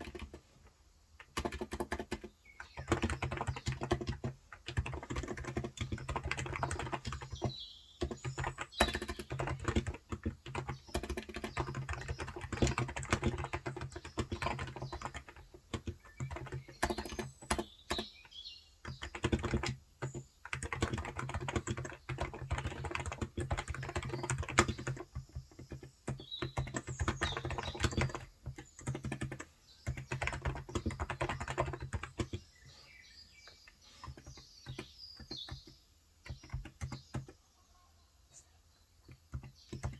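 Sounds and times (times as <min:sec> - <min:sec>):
keyboard typing: 0:00.0 - 0:00.5, 0:01.2 - 0:32.6, 0:33.4 - 0:37.4, 0:39.0 - 0:39.9
bird chirps: 0:04.9 - 0:09.8, 0:10.5 - 0:20.4, 0:23.7 - 0:39.9.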